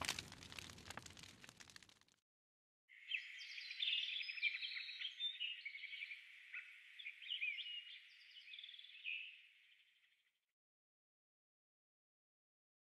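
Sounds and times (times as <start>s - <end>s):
small birds singing: 3.0s - 10.3s.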